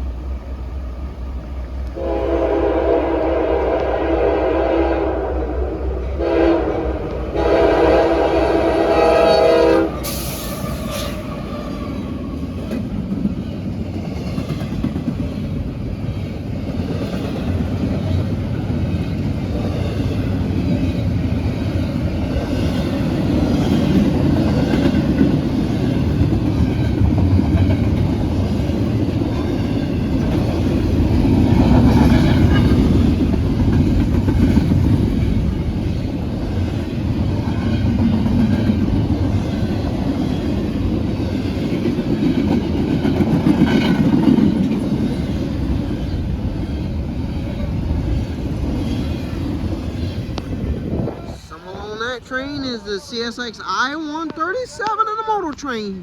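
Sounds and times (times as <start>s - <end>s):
locomotive air horn blasts: 2.0s - 11.8s
train wheels clattering on rail: 8.7s - 51.1s.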